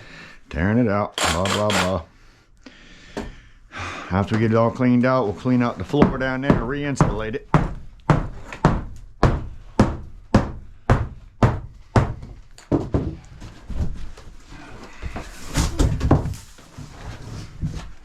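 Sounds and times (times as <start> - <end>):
hammer blows: 1.2 - 2.0
floor knocking and cracking: 11.4 - 14.2, 15.1 - 17.0.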